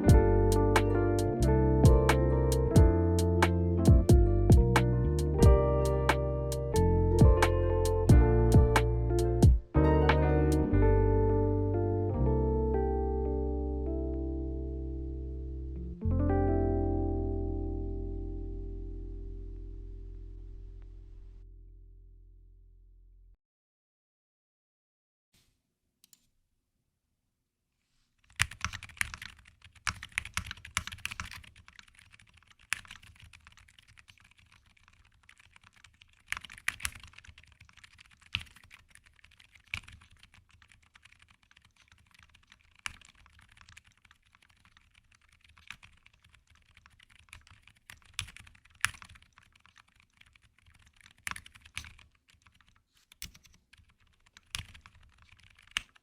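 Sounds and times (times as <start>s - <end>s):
soft keyboard typing: 28.2s - 56.0s.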